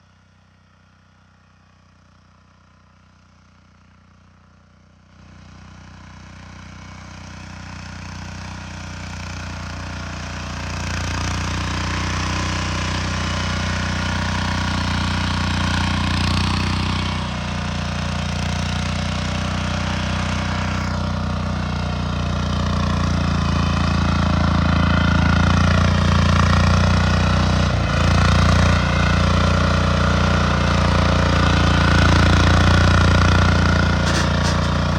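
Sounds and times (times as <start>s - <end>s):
tractor engine running: 13.9s - 34.9s.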